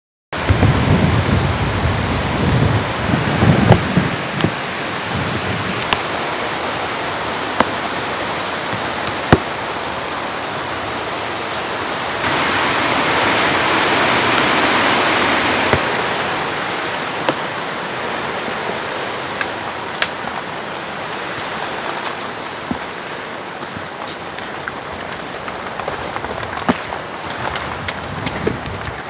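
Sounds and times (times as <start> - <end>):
sharp taps of raindrops: 0.4 - 6.2, 7.5 - 17.5, 19.4 - 20.5
heavy rain falling: 0.4 - 29.0.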